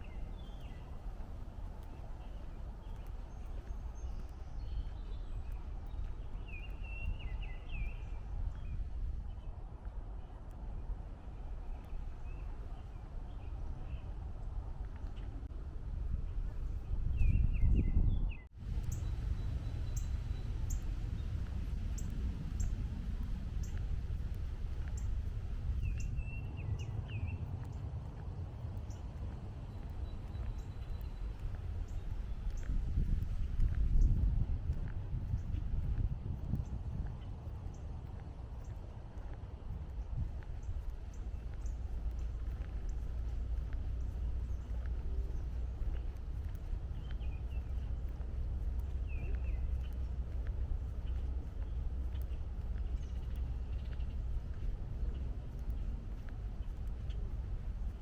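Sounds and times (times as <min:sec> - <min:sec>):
footsteps on trail: 0:00.0 - 0:09.4, 0:18.6 - 0:58.0
songbird singing: 0:00.0 - 0:09.6, 0:10.3 - 0:15.5, 0:16.1 - 0:58.0
distant highway traffic: 0:18.6 - 0:33.9, 0:37.2 - 0:58.0.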